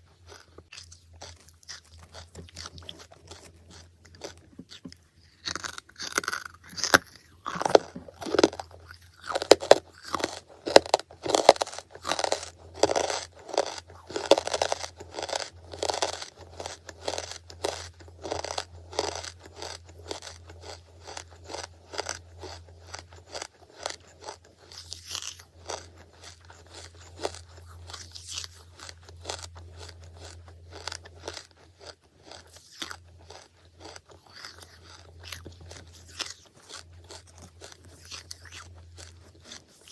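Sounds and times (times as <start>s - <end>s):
crunching and chewing in mouth: 0.0s - 39.9s
low steady hum: 0.0s - 39.9s.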